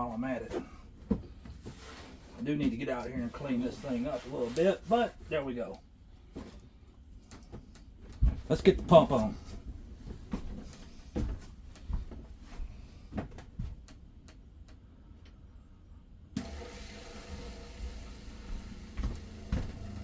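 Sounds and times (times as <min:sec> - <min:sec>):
water pump running: 0:16.4 - 0:20.0.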